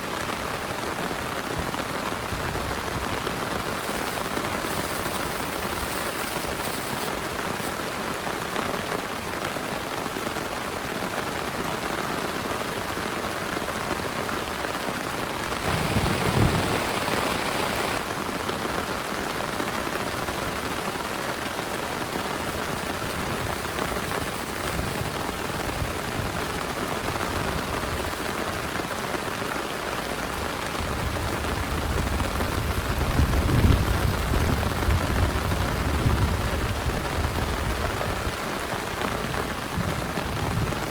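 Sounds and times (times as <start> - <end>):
heavy rain: 0.0 - 40.9
thunder rumble: 15.5 - 18.0.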